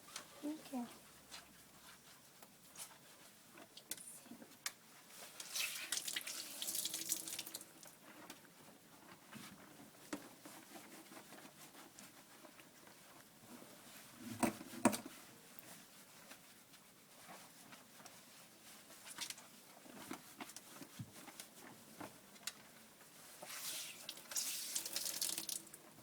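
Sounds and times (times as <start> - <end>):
water dripping in a bathtub: 5.5 - 7.9, 23.8 - 25.9.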